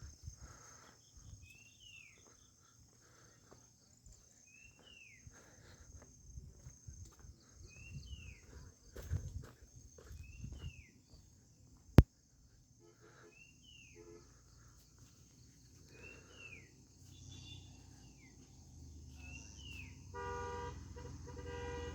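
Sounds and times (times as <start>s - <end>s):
pulsing horn-like tone: 20.1s - 21.9s.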